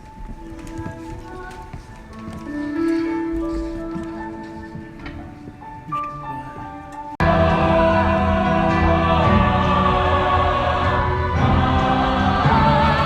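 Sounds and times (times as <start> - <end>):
choir singing with accompaniment: 7.1 - 13.0.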